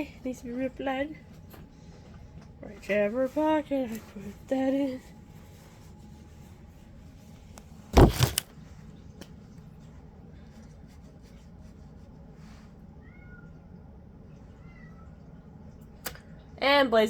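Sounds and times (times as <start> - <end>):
faint steady hum: 0.0 - 17.0
clothing rubbing against phone: 5.1 - 8.4.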